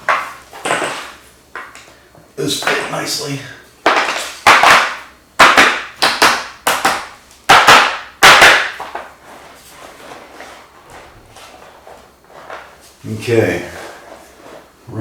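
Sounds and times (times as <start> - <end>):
chair casters knocking on floor: 0.0 - 1.7, 3.8 - 9.1.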